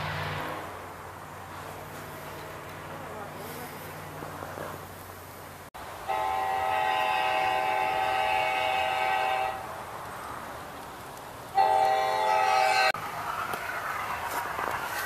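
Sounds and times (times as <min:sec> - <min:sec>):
model train electronic horn: 0:06.0 - 0:09.7, 0:11.6 - 0:13.0.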